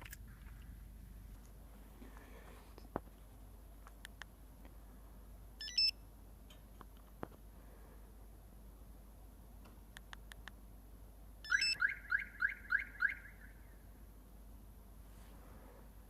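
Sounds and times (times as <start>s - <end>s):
faint clicks: 3.8s - 4.8s, 9.6s - 10.6s
car alarm chirps: 5.6s - 6.0s, 11.4s - 13.8s.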